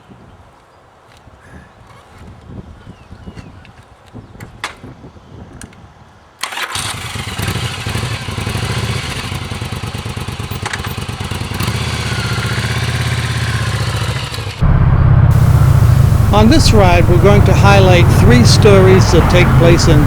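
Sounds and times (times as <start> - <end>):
motorcycle engine idling: 8.5 - 20.0.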